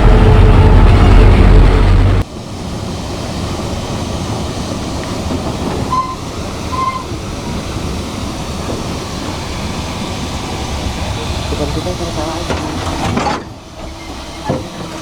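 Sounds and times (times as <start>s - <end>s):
loud low rumble: 0.0s - 3.9s
train running on rails: 0.0s - 15.0s
short high squeaks: 5.9s - 7.2s.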